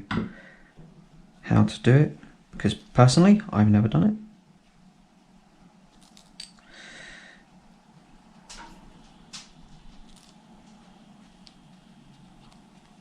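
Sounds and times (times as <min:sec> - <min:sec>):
low steady hum: 0:00.0 - 0:13.0
metal parts clicking and tapping: 0:06.0 - 0:06.6.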